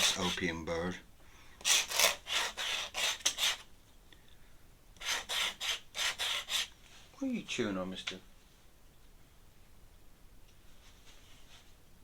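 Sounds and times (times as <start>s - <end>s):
pen scratching on paper: 0.0s - 0.4s, 1.6s - 3.6s, 5.0s - 6.7s.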